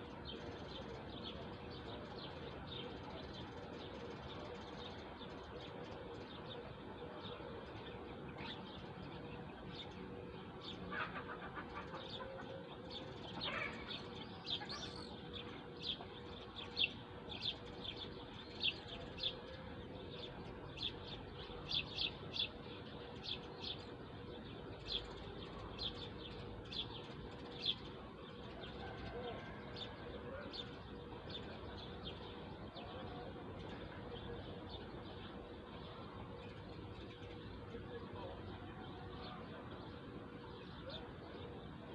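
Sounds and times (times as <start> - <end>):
faint steady hum: 0.0 - 41.9
small birds chirping: 0.0 - 41.9.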